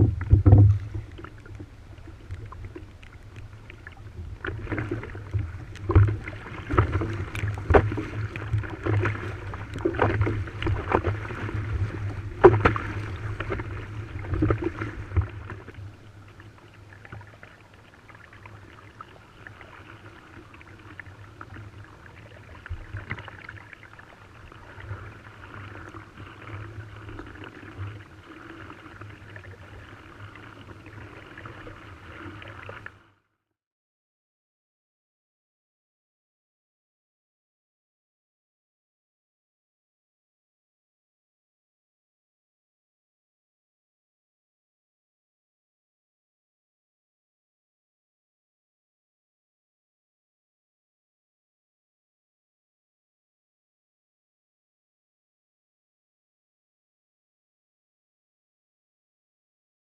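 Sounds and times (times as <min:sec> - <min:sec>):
water slapping and knocking: 0:00.0 - 0:01.3, 0:04.4 - 0:15.3
wind rumbling on microphone: 0:00.0 - 0:16.2
water splashing along a hull: 0:00.0 - 0:33.4.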